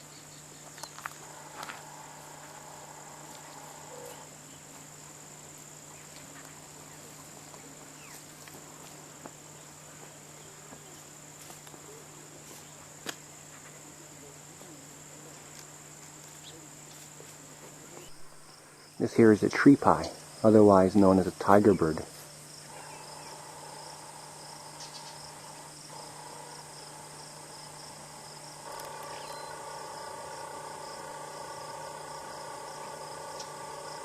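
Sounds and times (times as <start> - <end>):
faint chirps: 0.0 - 8.4, 22.6 - 34.0
insect chirring: 0.0 - 34.0
low hum: 1.2 - 4.7, 22.6 - 34.0.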